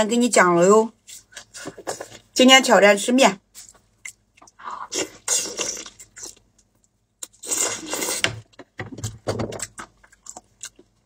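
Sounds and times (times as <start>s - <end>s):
person chewing meat: 3.6s - 8.7s, 9.6s - 11.0s.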